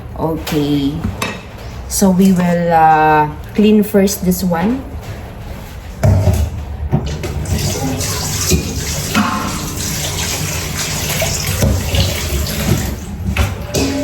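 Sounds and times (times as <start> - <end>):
tap water running and splashing: 7.0 - 13.5.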